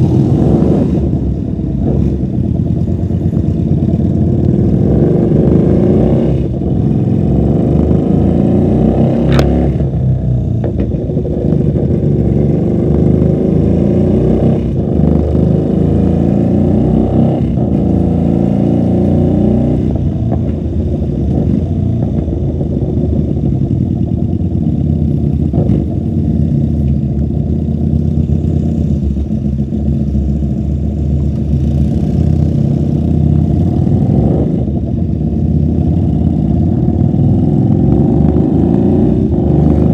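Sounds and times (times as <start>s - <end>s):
muffled motorcycle engine revving: 0.0s - 39.9s.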